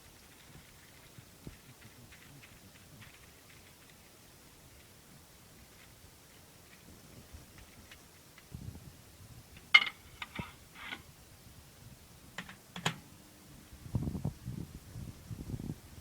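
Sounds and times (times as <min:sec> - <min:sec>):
scattered clicks and taps: 0:12.4 - 0:13.0.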